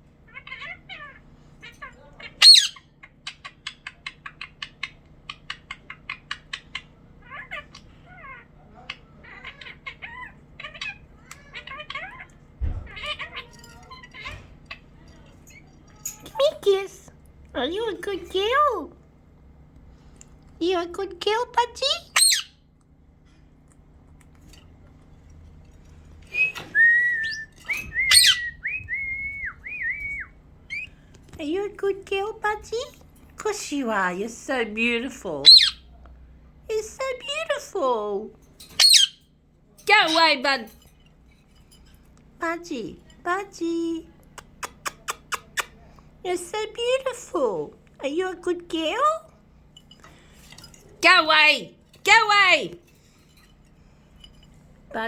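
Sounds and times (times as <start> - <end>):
pet bird chirps: 0.3 - 16.8, 21.8 - 22.6, 26.3 - 31.0, 35.4 - 35.9, 38.8 - 39.3
budgerigar warbling chirps: 2.2 - 7.8, 22.1 - 22.6, 28.1 - 28.5, 35.4 - 35.9, 38.8 - 39.2
budgerigar squawk: 2.3 - 2.9, 22.1 - 22.6, 35.4 - 35.8, 38.8 - 39.2
budgerigar clicks: 44.3 - 45.8.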